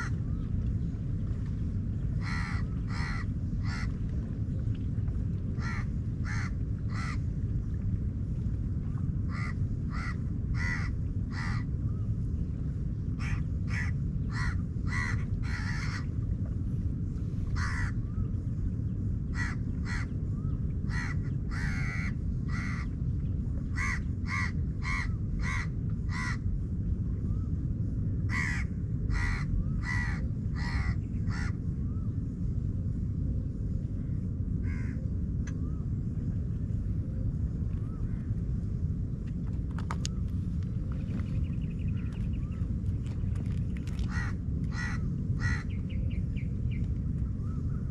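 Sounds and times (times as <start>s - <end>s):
low rumble: 0.0s - 47.9s
crows cawing: 2.2s - 3.9s, 5.6s - 7.2s, 9.3s - 11.6s, 13.2s - 16.1s, 17.5s - 18.0s, 19.3s - 20.1s, 20.9s - 22.8s, 23.8s - 26.4s, 28.3s - 31.5s, 34.6s - 35.0s, 43.9s - 45.8s.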